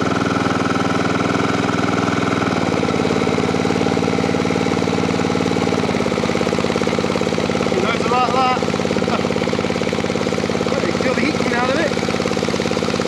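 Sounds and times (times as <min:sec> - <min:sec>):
portable generator engine running: 0:00.0 - 0:13.0.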